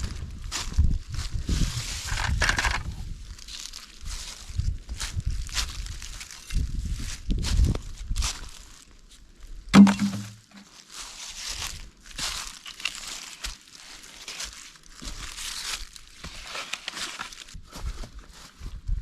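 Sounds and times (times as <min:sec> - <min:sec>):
dry plant material rustling: 0:00.0 - 0:08.9, 0:09.8 - 0:18.6
sharp ringing knock: 0:09.8 - 0:10.4.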